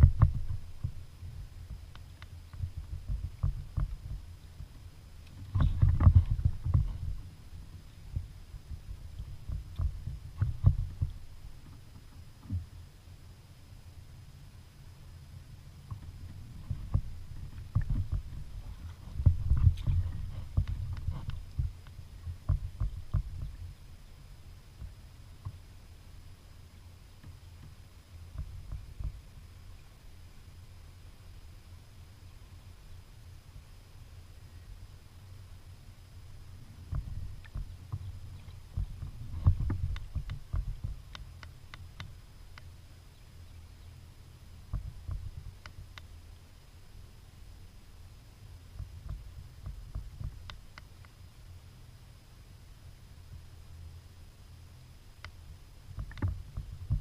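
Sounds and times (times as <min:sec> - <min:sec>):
low rumble: 0:00.0 - 0:13.1, 0:15.1 - 0:46.0
small sharp clicks: 0:39.4 - 0:42.7, 0:44.7 - 0:46.1, 0:48.8 - 0:51.2, 0:55.2 - 0:55.4, 0:56.0 - 0:56.7.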